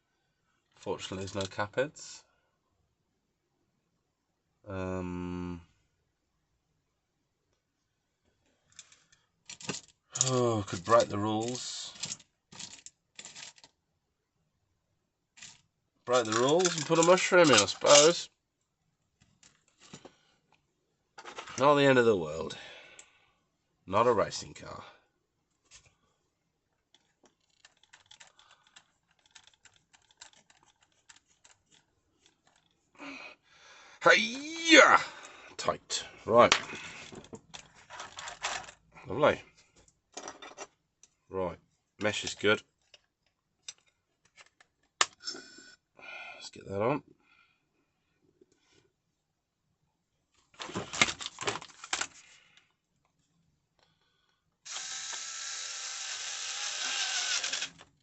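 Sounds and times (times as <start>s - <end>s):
small parts clicking and clattering: 1.2s - 1.6s, 8.4s - 13.8s, 15.4s - 18.2s, 19.2s - 20.6s, 21.2s - 21.6s, 26.8s - 32.9s, 36.5s - 38.8s, 40.1s - 41.2s, 42.8s - 45.2s, 50.6s - 52.7s, 53.8s - 58.0s.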